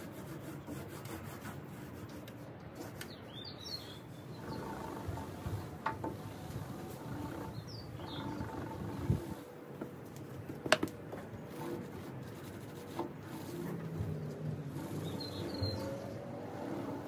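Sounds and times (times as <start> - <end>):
low steady background noise: 0.0 - 17.0
high bird chirps: 15.0 - 16.2.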